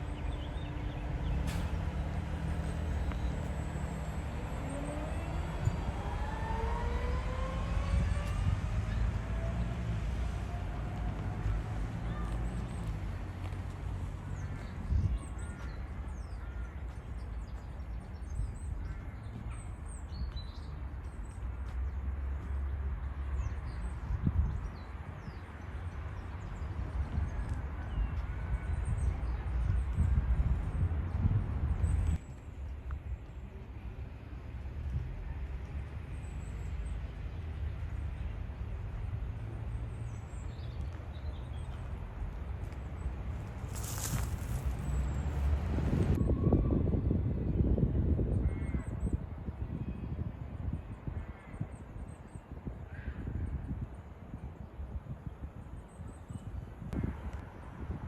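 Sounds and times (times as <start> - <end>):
low street rumble: 0.0 - 47.7
small birds chirping: 42.6 - 45.6.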